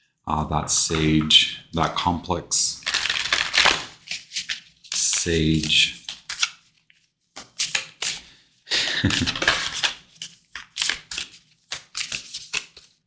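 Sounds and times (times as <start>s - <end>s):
cards snapping and riffling: 2.8s - 8.3s, 8.9s - 13.0s.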